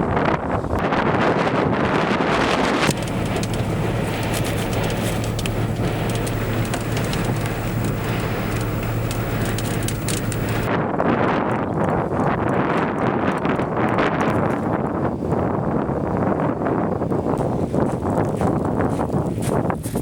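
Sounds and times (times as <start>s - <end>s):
tornado wind rushing: 1.9s - 10.7s
scattered crackles: 2.8s - 10.7s
low hum: 2.9s - 10.7s.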